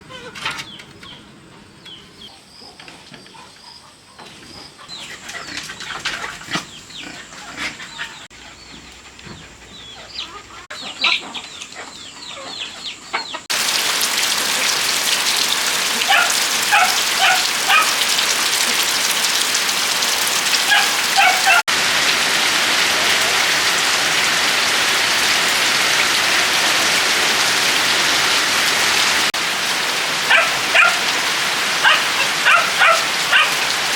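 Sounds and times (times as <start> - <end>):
heavy rain: 13.5 - 33.9.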